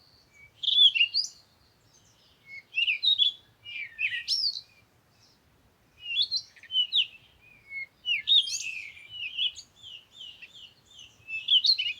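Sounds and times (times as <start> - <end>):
songbirds singing: 6.0 - 11.9.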